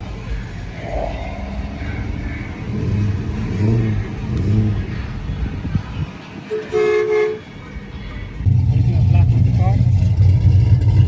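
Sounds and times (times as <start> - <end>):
car engine rumbling: 0.0 - 11.0
car horn: 6.3 - 8.0.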